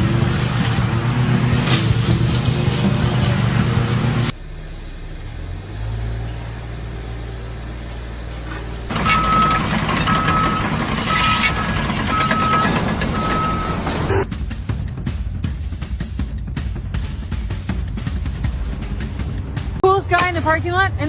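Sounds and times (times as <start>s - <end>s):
vehicle engine rumbling: 0.0s - 19.8s
loud machine noise: 8.9s - 14.9s
reversing alarm beeping: 9.0s - 14.3s.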